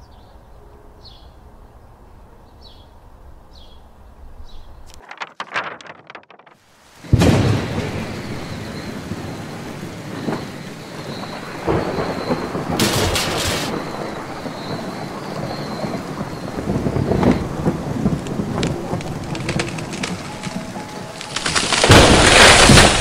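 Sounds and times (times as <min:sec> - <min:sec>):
heavy rain: 0:06.6 - 0:23.0
rolling thunder: 0:07.0 - 0:23.0
sharp crackling burst: 0:16.0 - 0:23.0.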